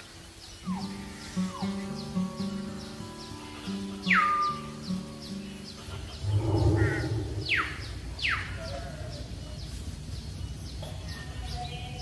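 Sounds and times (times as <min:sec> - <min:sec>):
faint bird chirps: 0:00.0 - 0:12.0
falling whistled bird calls: 0:00.4 - 0:09.8
low rough sound: 0:06.2 - 0:08.0.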